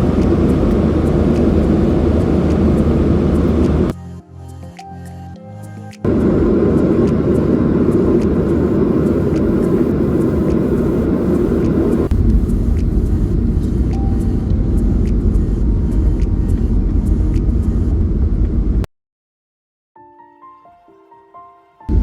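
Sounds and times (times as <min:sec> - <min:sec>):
vehicle rumble: 0:00.0 - 0:03.9, 0:06.0 - 0:18.9.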